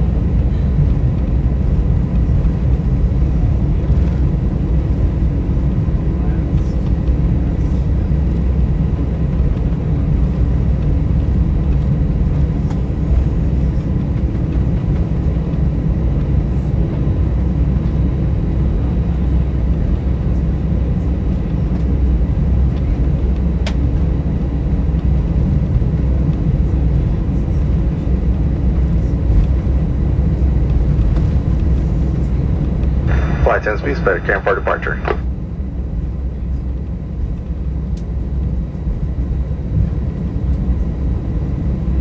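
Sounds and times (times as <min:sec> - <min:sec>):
jet engines idling: 0:00.0 - 0:38.1
faint steady whine: 0:30.3 - 0:35.4.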